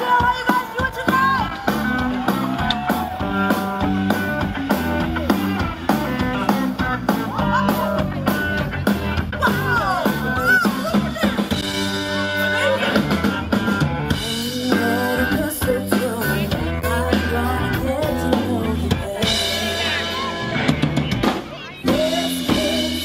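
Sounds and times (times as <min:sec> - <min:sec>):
guitar: 0:00.0 - 0:23.0
live band playing: 0:00.0 - 0:23.0
steady drum beat: 0:00.0 - 0:23.0
person singing: 0:14.1 - 0:20.6, 0:21.8 - 0:23.0.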